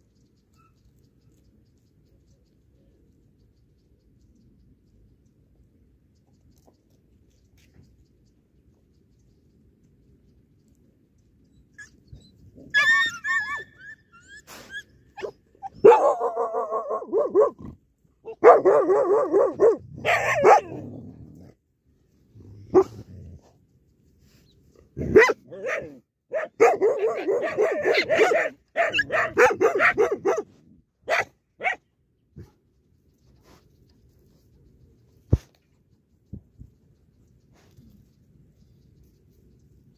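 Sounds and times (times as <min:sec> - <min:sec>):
high-pitched dog whine: 0:11.7 - 0:17.7
dogs snarling and growling: 0:19.4 - 0:21.6
short sharp dog barks: 0:25.0 - 0:30.5, 0:31.1 - 0:31.8.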